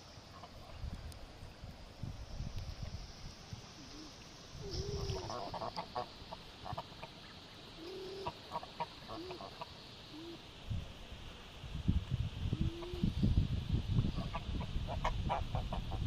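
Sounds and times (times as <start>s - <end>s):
ducks chattering calls: 4.7s - 10.4s
geese honking: 5.0s - 7.3s.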